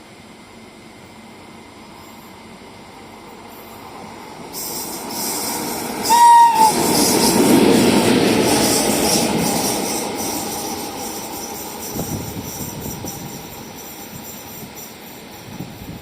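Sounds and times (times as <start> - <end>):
train rushing by: 0.0 - 16.0
train horn blast: 6.0 - 7.0.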